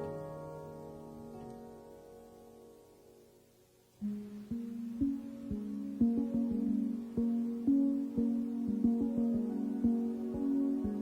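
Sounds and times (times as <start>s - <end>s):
background music: 4.0s - 11.0s.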